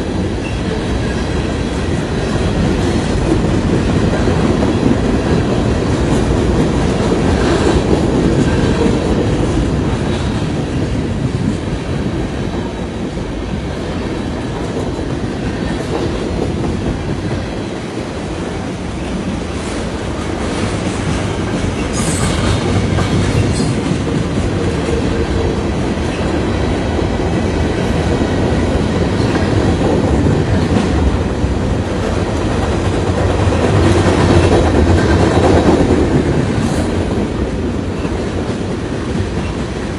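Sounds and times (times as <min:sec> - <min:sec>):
train wheels rumbling and clicking: 0:00.0 - 0:39.9.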